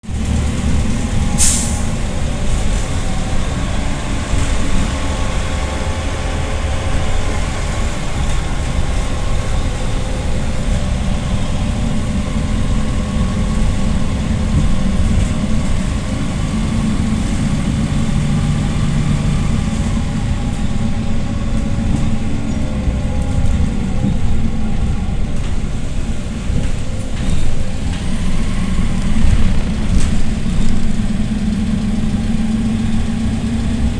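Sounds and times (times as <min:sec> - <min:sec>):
bus engine running: 0:00.0 - 0:33.9
compressed air hiss: 0:01.4 - 0:02.0.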